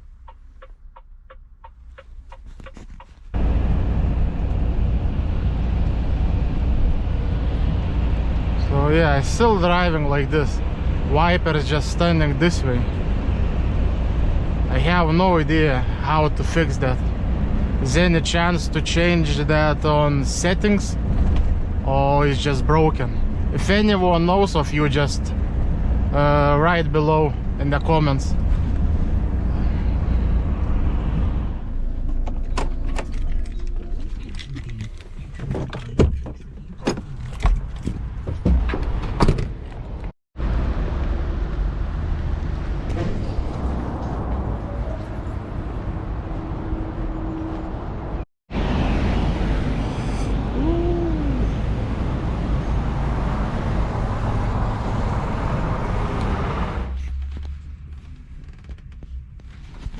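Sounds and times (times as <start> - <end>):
low hum: 0.0 - 37.4
diesel engine rumble: 0.0 - 59.9.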